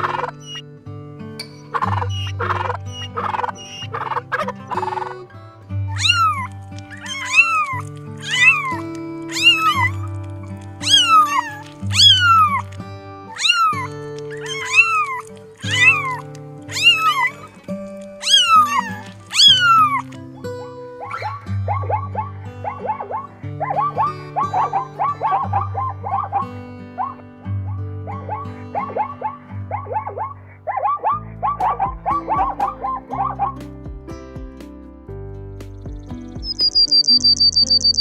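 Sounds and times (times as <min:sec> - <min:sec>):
cat meowing: 0:00.0 - 0:00.6, 0:05.9 - 0:10.1, 0:10.8 - 0:12.7, 0:13.3 - 0:17.5, 0:18.1 - 0:20.1
background music: 0:00.0 - 0:38.0
turkey gobbling: 0:01.7 - 0:05.2, 0:28.1 - 0:33.4.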